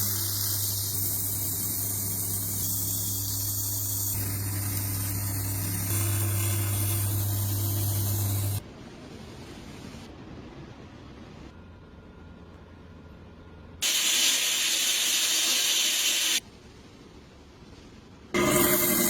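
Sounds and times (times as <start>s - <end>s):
hissing spray: 0.0s - 8.6s, 13.8s - 16.4s
low steady hum: 0.0s - 13.8s, 16.4s - 19.0s.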